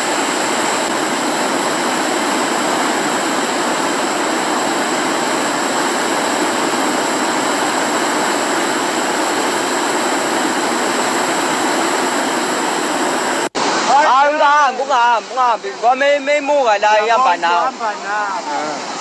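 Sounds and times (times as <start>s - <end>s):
floodwater rushing roar: 0.0s - 19.0s.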